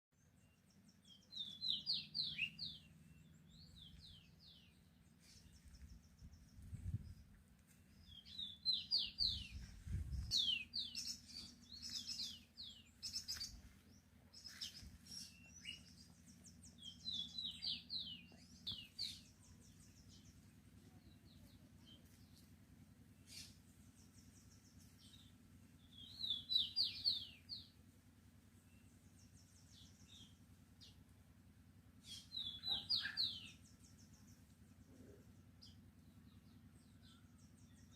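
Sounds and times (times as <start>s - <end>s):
songbird chirping: 0.1s - 37.9s
faint low hum: 0.2s - 37.9s.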